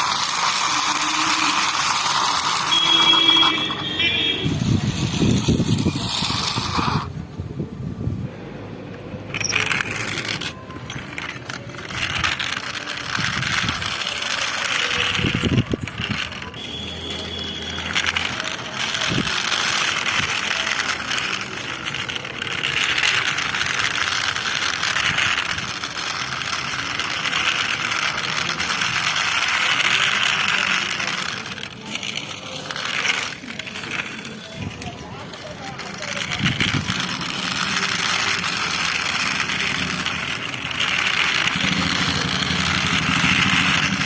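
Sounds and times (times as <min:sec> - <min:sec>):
plastic toy vehicles rolling: 0:00.0 - 0:44.0.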